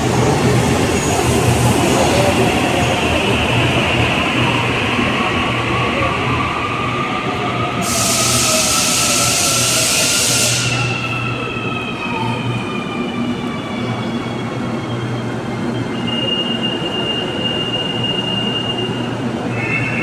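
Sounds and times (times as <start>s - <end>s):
train low rumble: 0.0s - 15.8s.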